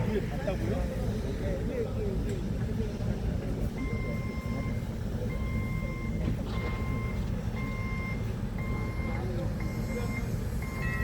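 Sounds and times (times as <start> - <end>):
forklift reversing alarm beeping: 3.7 - 11.0.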